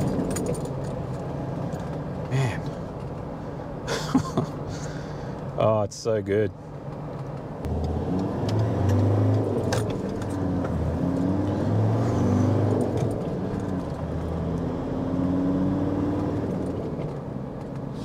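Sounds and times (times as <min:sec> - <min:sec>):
car engine accelerating: 0:06.9 - 0:18.0.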